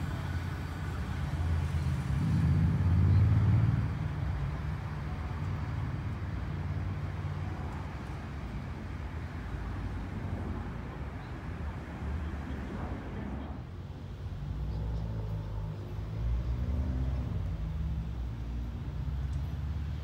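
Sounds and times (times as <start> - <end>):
electric train rumble and hum: 7.5 - 16.4.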